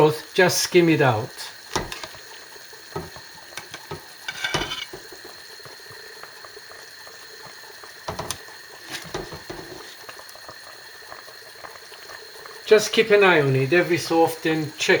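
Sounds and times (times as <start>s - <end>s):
broth bubbling in a pan: 0.0s - 15.0s
spoon clinking and scraping pan: 1.7s - 2.2s, 3.0s - 5.2s.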